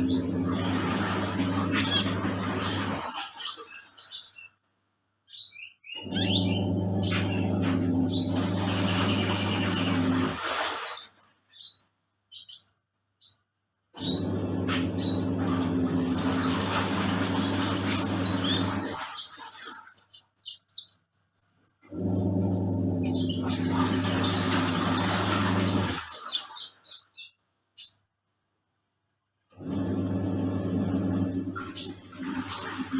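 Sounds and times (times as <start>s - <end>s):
washing machine motor humming: 0.0s - 3.9s, 6.0s - 11.2s, 14.0s - 19.8s, 21.8s - 26.7s, 29.5s - 32.9s
songbird chirping: 0.0s - 10.4s, 11.0s - 28.5s.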